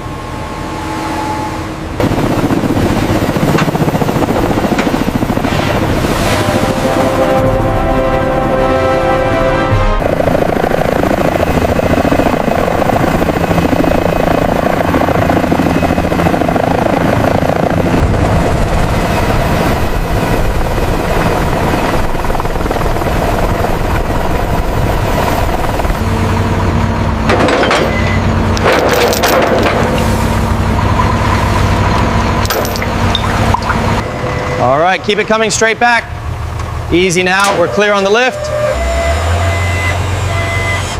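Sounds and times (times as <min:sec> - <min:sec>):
engine and machinery drone: 0:00.0 - 0:40.9.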